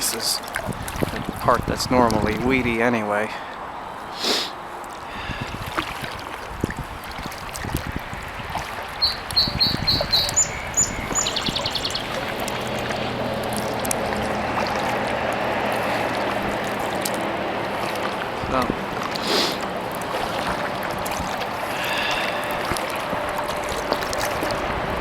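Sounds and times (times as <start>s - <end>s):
rushing noise with low hum: 0.0s - 3.0s, 3.6s - 25.0s
water dripping and splashing: 0.0s - 3.8s, 4.7s - 25.0s
kayak paddle strokes: 3.4s - 25.0s
songbird singing: 8.0s - 24.6s.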